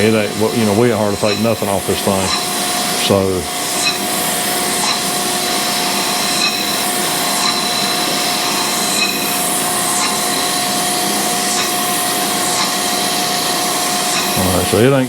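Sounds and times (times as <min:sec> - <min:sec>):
grinding wheel hissing grind: 0:00.0 - 0:15.0
machine hum: 0:00.0 - 0:15.0.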